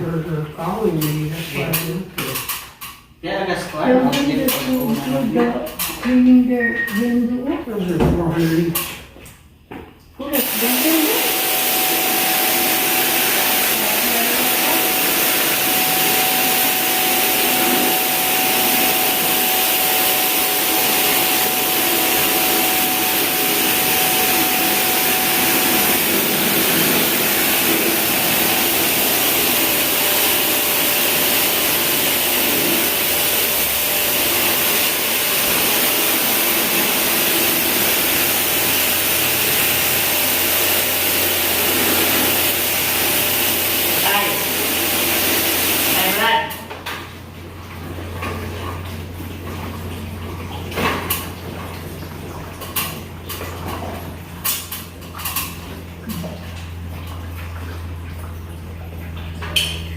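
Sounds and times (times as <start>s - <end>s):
cleaning machine hissing rush: 10.3s - 46.3s.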